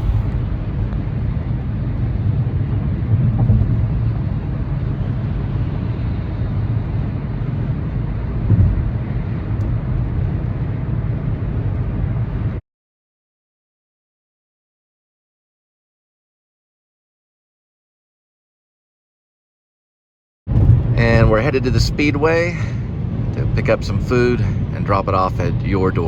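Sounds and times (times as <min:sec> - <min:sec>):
low rumbling noise: 0:00.0 - 0:12.6, 0:20.5 - 0:26.0.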